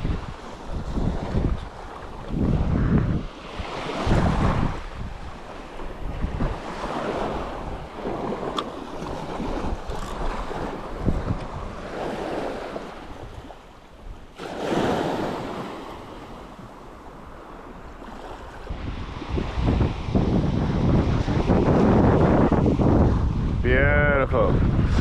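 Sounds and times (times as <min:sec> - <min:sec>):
surf washing up a sandy beach: 0:00.0 - 0:25.0
wind gusting on microphone: 0:00.0 - 0:25.0.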